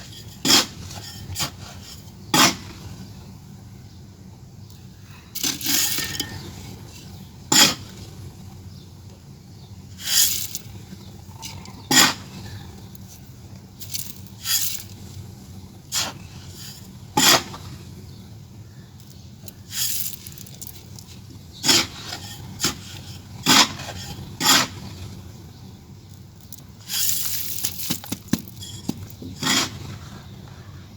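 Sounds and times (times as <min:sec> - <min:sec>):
gritty scrapes: 0:00.0 - 0:03.2, 0:05.2 - 0:08.5, 0:09.9 - 0:18.2, 0:19.0 - 0:30.7
clay pieces clacking: 0:26.5 - 0:29.6.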